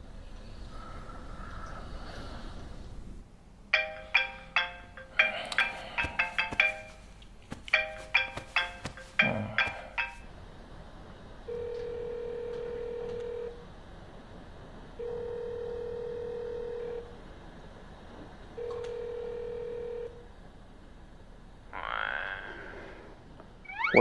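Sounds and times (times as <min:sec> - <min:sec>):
telephone ringback tone: 0:11.5 - 0:13.5, 0:15.0 - 0:17.0, 0:19.0 - 0:20.1.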